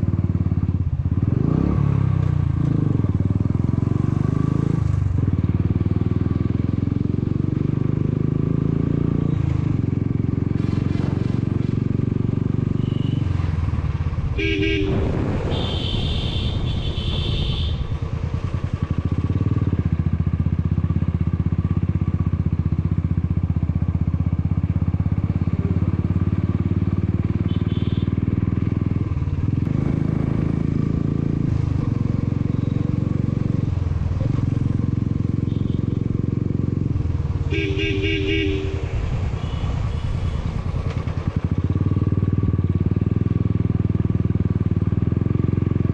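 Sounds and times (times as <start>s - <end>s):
motorcycle engine running: 0.0s - 45.9s
pulsing horn honks: 12.6s - 13.5s, 14.2s - 18.1s, 27.2s - 28.4s, 35.2s - 36.2s, 37.3s - 40.8s.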